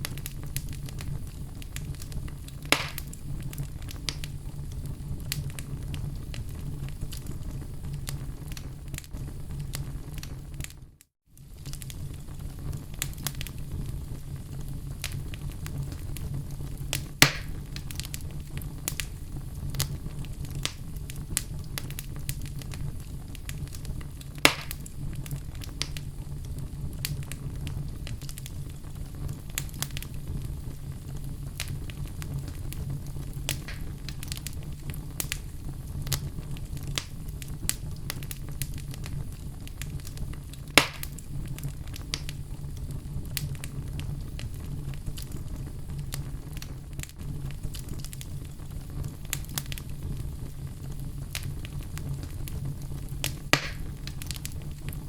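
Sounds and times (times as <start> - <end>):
fire crackling and popping: 0.0 - 55.0
low rumble of flames: 0.0 - 55.0
loud sharp pops from logs: 2.7 - 3.1, 17.2 - 17.5, 24.4 - 24.8, 33.5 - 33.9, 40.8 - 41.2, 53.5 - 53.9.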